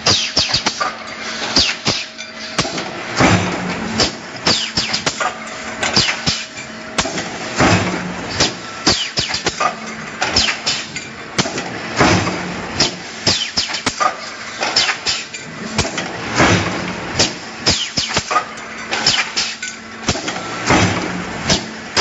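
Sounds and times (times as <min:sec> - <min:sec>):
sharp metal clanks: 0:00.0 - 0:12.2, 0:17.2 - 0:22.0
machine hum: 0:00.0 - 0:22.0.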